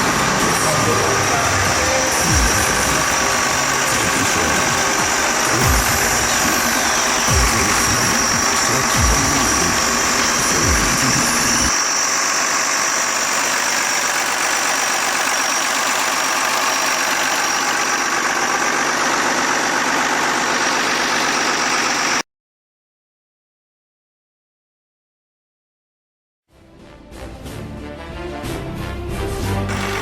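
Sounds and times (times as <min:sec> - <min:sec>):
diesel tractor engine idling: 0:00.0 - 0:22.2, 0:29.7 - 0:30.0
music with low bass line: 0:00.1 - 0:11.7.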